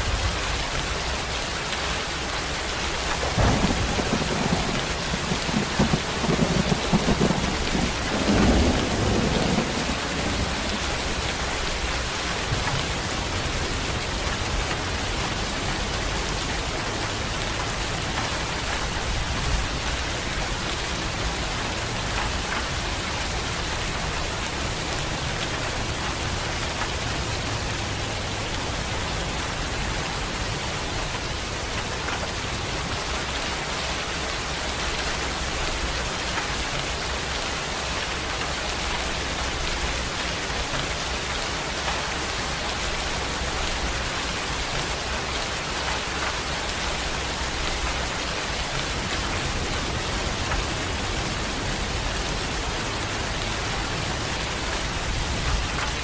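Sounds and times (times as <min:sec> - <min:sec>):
steady rain hissing: 0:00.0 - 0:56.0
thunder rumble: 0:03.0 - 0:26.5.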